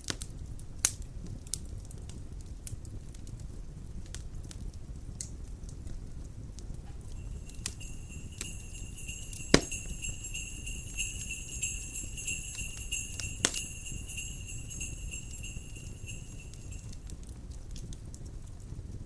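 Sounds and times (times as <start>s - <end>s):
fire popping: 0.0s - 18.6s
crackling wood fire: 0.0s - 19.0s
low steady rumble: 6.2s - 17.6s
jingle bells shaking: 7.1s - 17.0s.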